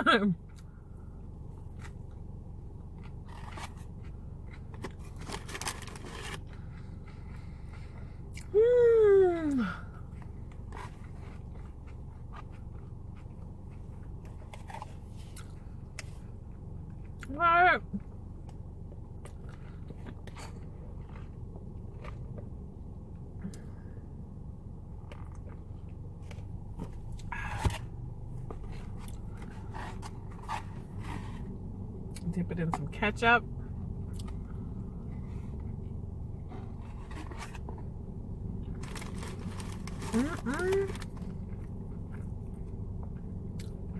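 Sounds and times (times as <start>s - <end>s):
low steady hum: 0.0s - 43.9s
small crunches: 2.9s - 7.2s, 38.6s - 42.3s
food packaging rustling: 4.8s - 6.6s, 38.7s - 41.4s
person chewing food: 25.0s - 32.2s, 34.1s - 35.7s.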